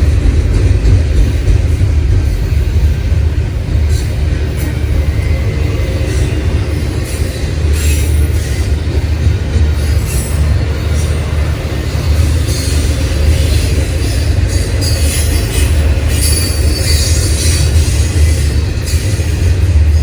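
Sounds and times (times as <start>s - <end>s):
train wheels rumbling on rails: 0.0s - 20.0s
high wheel squeal: 9.8s - 19.4s.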